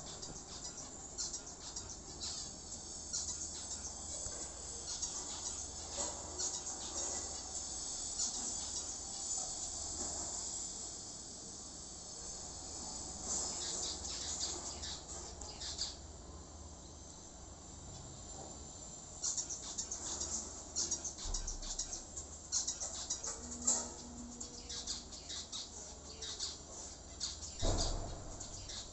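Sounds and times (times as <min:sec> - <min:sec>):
finches cheeping: 0:19.2 - 0:28.9.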